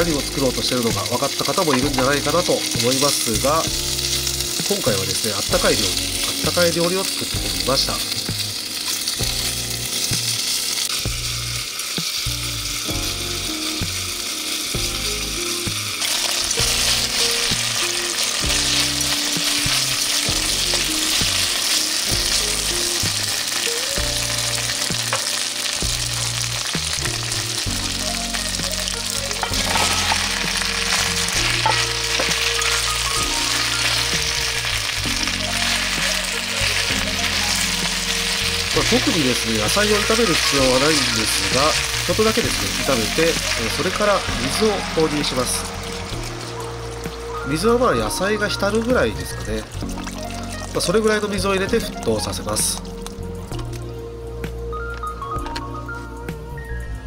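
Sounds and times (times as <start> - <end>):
meat sizzling in oil: 0.0 - 57.0
chopsticks stirring in pot: 16.0 - 45.4.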